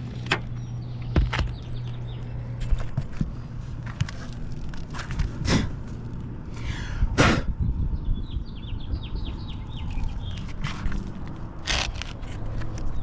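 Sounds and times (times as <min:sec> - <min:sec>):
footsteps on shingle roof: 0:02.6 - 0:06.2.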